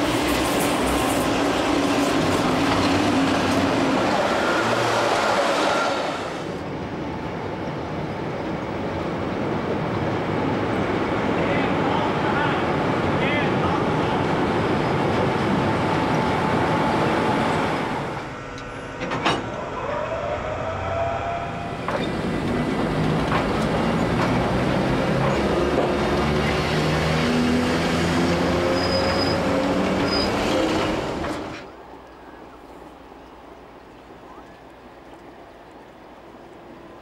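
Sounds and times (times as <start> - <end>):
train rumbling through station: 0.0 - 37.0
locomotive motors whining: 15.2 - 26.2.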